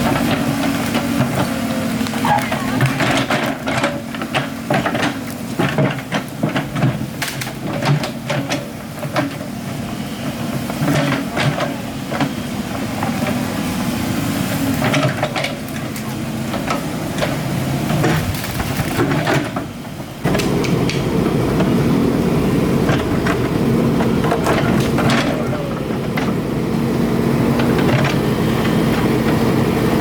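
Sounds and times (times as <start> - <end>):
digging knocks and clatter: 0.0 - 12.4, 22.8 - 26.5
excavator diesel engine running: 0.0 - 30.0.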